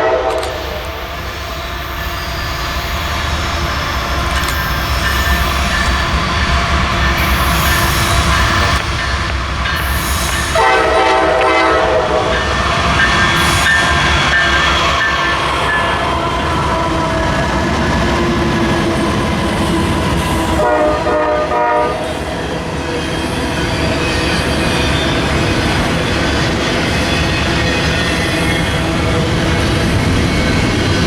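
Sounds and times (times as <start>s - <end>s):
locomotive horn blasts: 0.0s - 1.0s, 10.5s - 12.6s, 20.6s - 22.2s
train rumble and wheel noise: 0.0s - 31.0s.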